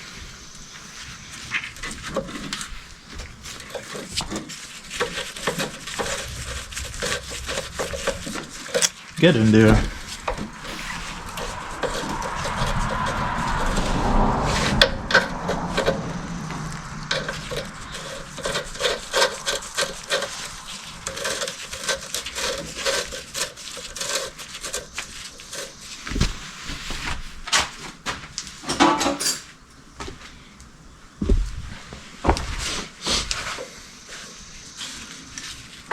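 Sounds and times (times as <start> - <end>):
hand tools clicking and scraping: 28.6 - 29.6.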